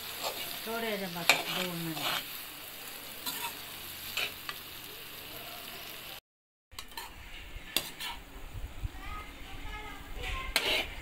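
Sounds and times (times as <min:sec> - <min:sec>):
metal spatula scraping a pan: 0:00.0 - 0:02.4, 0:03.2 - 0:04.5, 0:06.8 - 0:08.3, 0:10.2 - 0:11.0
food sizzling in a wok: 0:00.0 - 0:06.2, 0:06.8 - 0:11.0.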